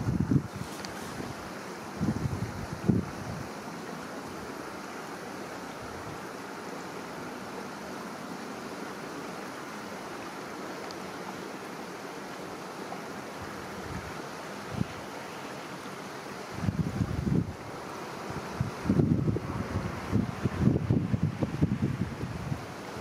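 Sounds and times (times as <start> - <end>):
wind gust on microphone: 0.0 - 3.6, 13.4 - 15.2, 16.4 - 23.0
river water flowing: 0.0 - 23.0.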